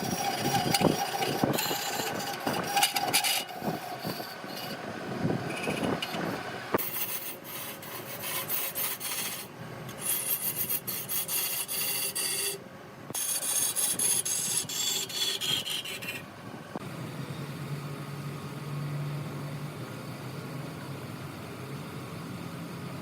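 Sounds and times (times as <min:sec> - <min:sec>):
lathe motor humming: 0:00.0 - 0:07.0
tool scraping wood on lathe: 0:00.0 - 0:12.6, 0:13.2 - 0:16.3.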